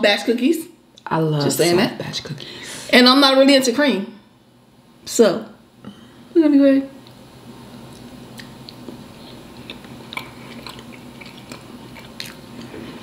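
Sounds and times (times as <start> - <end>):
faint low hum: 0.0 - 13.0
people chewing cookies: 7.8 - 13.0.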